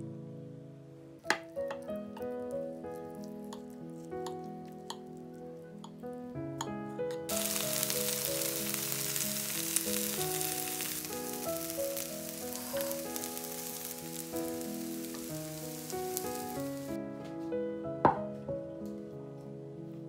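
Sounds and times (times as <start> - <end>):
background music: 0.0 - 20.0
fritters sizzling in oil: 1.3 - 5.2, 7.1 - 16.9.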